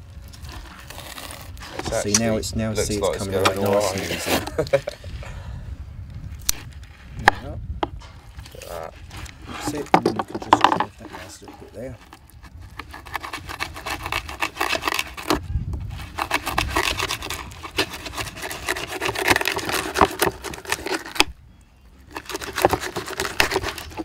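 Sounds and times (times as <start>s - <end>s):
knife scraping under fish skin: 0.3s - 2.4s, 11.0s - 21.2s, 22.1s - 24.0s.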